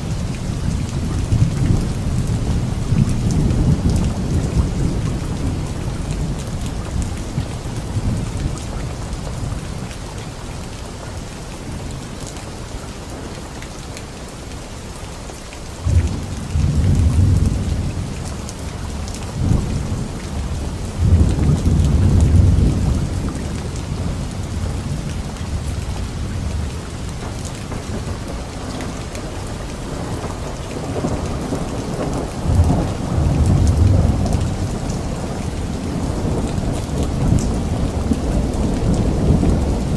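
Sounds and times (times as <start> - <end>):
steady rainfall: 0.0 - 39.9
thunder rolling: 29.9 - 39.9.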